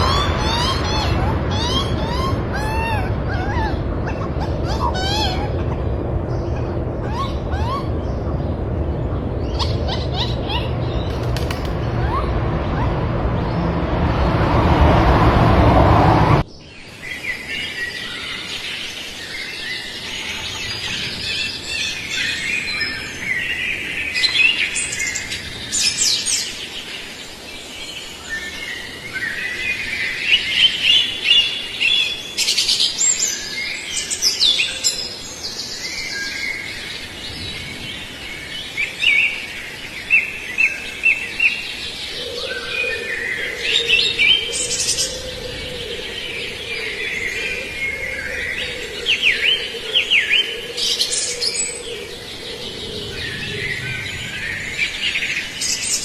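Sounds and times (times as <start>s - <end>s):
small birds chirping: 0.0s - 13.8s
loud rushing noise: 0.0s - 16.5s.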